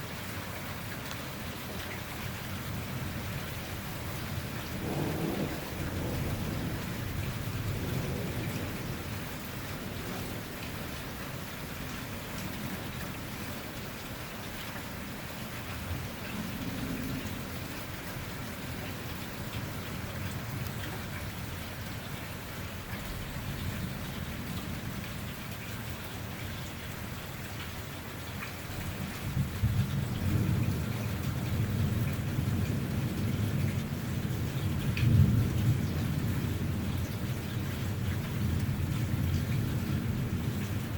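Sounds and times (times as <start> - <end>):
heavy rain falling: 0.0 - 40.9
thunder rumbling: 4.0 - 11.3.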